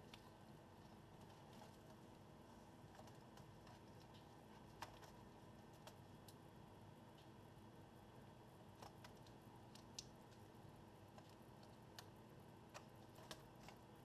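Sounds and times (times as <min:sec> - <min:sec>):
small clicks and taps: 0:00.0 - 0:02.2, 0:02.9 - 0:06.4, 0:08.7 - 0:10.5, 0:11.1 - 0:13.8.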